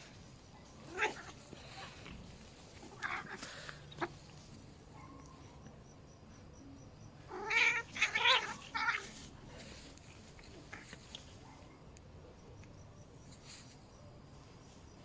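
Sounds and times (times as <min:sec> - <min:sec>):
cat yowling: 0:00.9 - 0:01.4, 0:02.9 - 0:03.4, 0:07.3 - 0:09.1.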